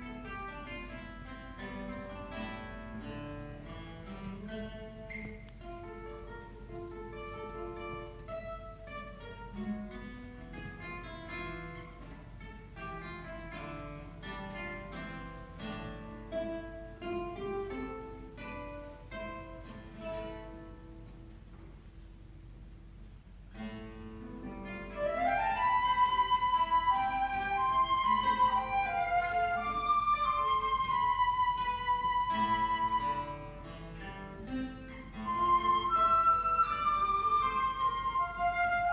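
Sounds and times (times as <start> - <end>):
guitar plucked notes: 0.0 - 21.8, 23.5 - 38.9
flute playing: 24.8 - 33.8, 35.1 - 38.9.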